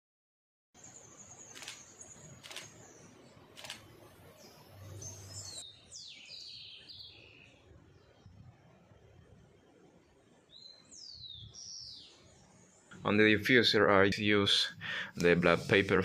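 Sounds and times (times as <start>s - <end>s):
faint birdsong: 0.8s - 16.0s
sharp clicks: 1.5s - 2.8s, 3.6s - 3.9s.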